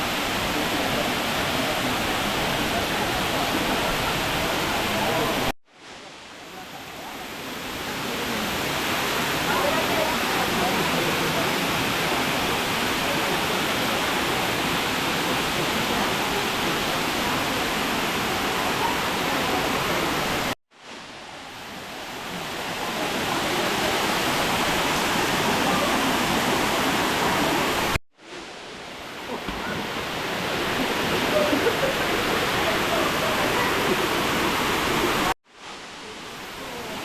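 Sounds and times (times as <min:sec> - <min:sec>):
waterfall roaring: 0:00.0 - 0:05.5, 0:06.5 - 0:37.0.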